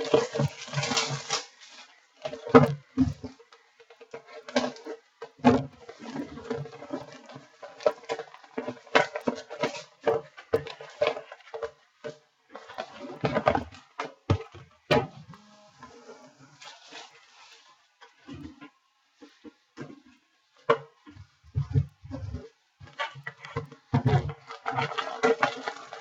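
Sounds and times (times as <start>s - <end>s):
faint steady hum: 15.0s - 16.7s.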